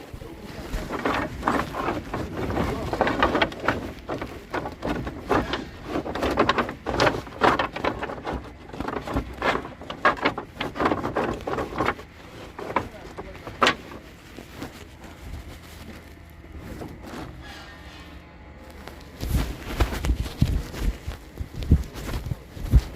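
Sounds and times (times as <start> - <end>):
wood clattering and knocking: 0.0 - 14.9.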